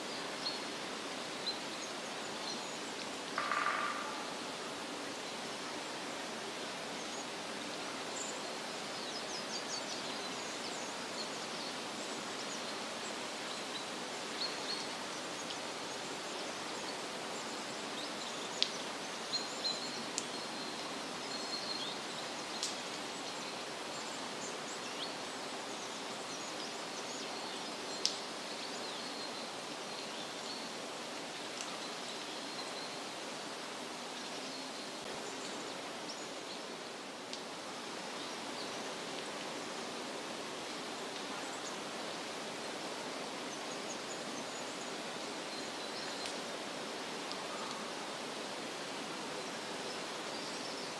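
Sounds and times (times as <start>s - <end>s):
steady rushing hiss: 0.0s - 50.9s.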